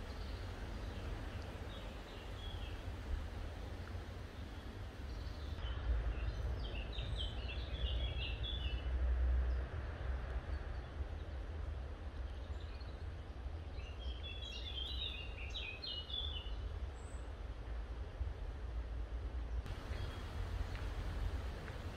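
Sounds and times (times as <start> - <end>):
songbird singing short notes: 19.7 - 21.0
steady low rumble: 19.7 - 21.9.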